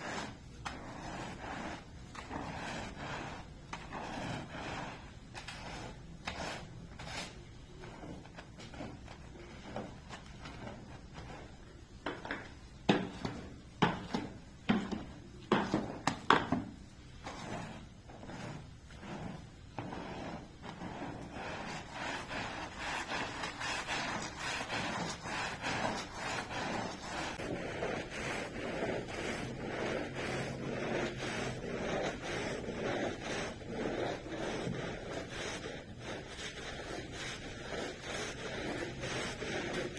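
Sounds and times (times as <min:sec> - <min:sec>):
stiff brush scrubbing carpet: 0:00.0 - 0:39.9.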